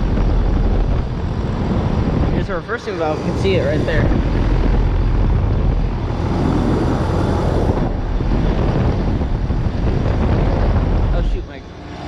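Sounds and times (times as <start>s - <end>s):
compressor hum: 0.0s - 12.0s
condenser fan rushing air: 0.0s - 12.0s.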